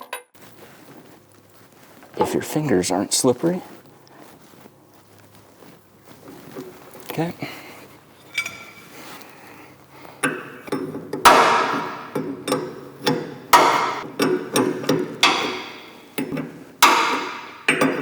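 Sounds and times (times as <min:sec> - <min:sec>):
wrench clinking on metal fitting: 0:08.2 - 0:09.0, 0:10.2 - 0:18.0.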